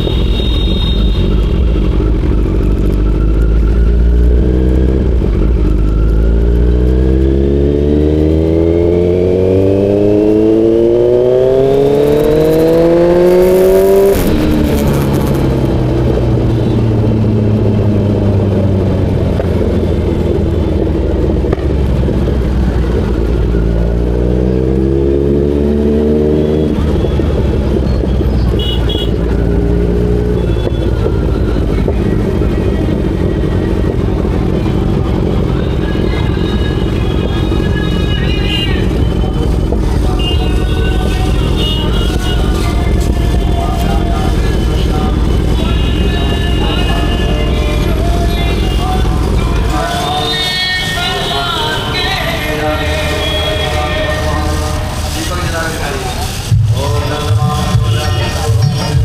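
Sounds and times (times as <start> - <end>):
motorcycle engine accelerating: 0.0 - 50.3
low rumble: 13.4 - 25.8, 29.2 - 50.2.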